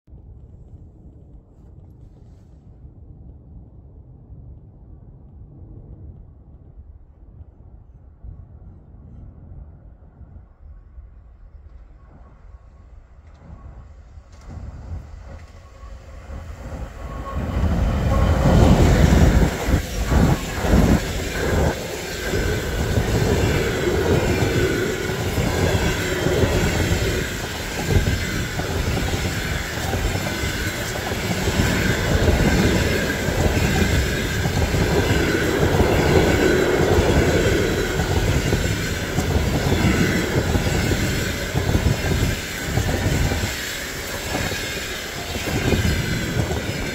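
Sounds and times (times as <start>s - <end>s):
faint high whine: 10.6s - 46.9s
train wheels roaring on rails: 10.7s - 46.9s
diesel locomotive passing: 11.6s - 46.9s.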